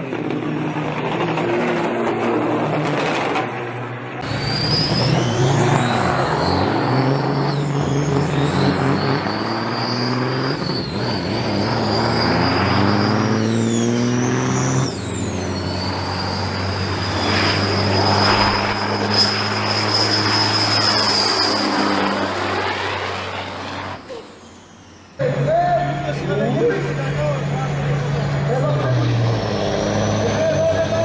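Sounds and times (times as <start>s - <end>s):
diesel truck engine accelerating: 0.0s - 31.0s
turbo whistle: 4.2s - 22.2s.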